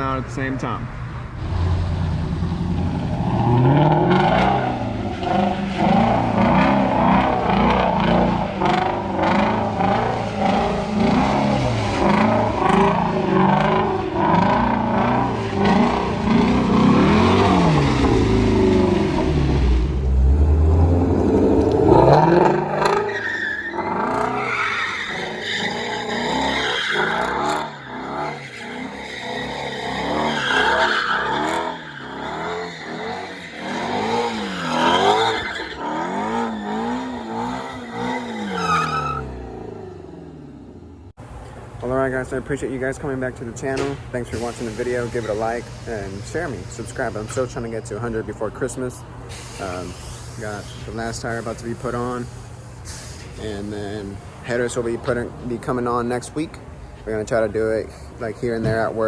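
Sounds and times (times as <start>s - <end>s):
car engine revving: 1.2s - 41.2s
tyres squealing: 20.0s - 39.7s.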